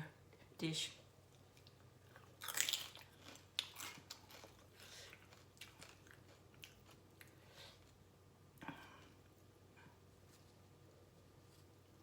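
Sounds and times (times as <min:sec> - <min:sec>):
crunchy chewing: 0:01.3 - 0:08.0.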